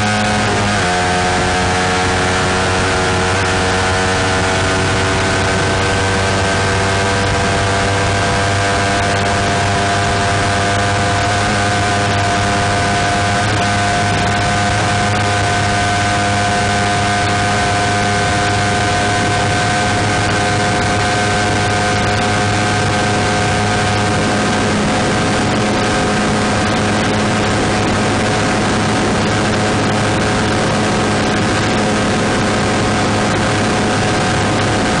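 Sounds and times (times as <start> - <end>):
motorcycle engine at high revs: 0.0 - 35.0.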